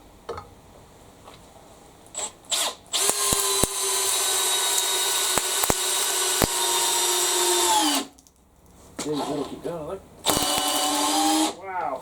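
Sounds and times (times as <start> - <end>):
sharp clicks: 2.2 - 8.0, 10.2 - 11.2
cordless drill driving screw: 2.2 - 8.1, 10.2 - 11.6.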